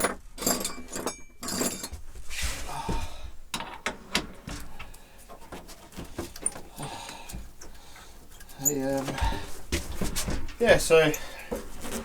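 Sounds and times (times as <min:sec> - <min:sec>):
person breathing heavily: 0:02.3 - 0:03.5, 0:06.6 - 0:08.3, 0:11.2 - 0:11.8.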